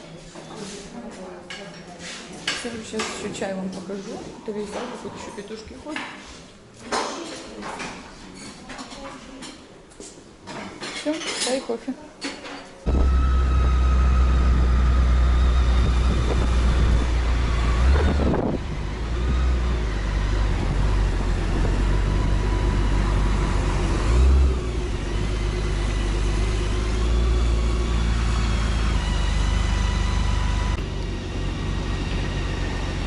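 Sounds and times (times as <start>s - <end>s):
heavy vehicle rumble: 12.9s - 33.0s
vehicles passing: 12.9s - 33.0s.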